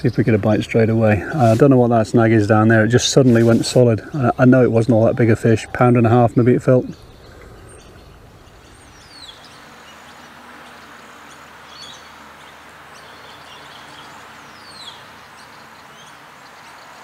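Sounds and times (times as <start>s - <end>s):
outdoor background hiss: 0.0s - 17.0s
bird chirps: 4.1s - 17.0s.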